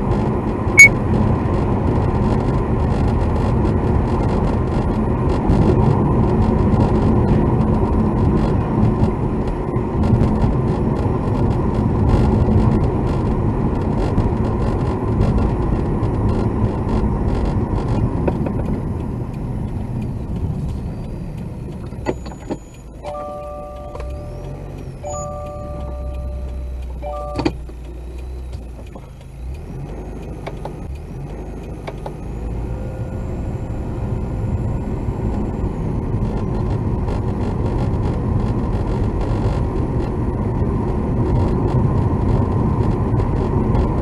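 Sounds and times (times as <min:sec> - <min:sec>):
car road and engine rumble: 0:00.0 - 0:44.0
electronic chime: 0:00.8 - 0:01.0, 0:23.0 - 0:24.4, 0:25.0 - 0:27.5.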